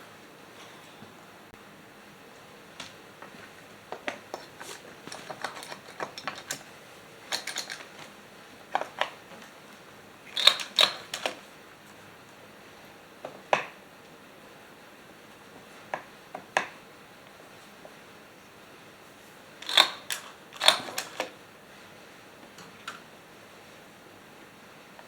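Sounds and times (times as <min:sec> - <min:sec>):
clicks and taps of hand tools: 0:02.8 - 0:06.7, 0:13.2 - 0:13.8, 0:15.9 - 0:16.8.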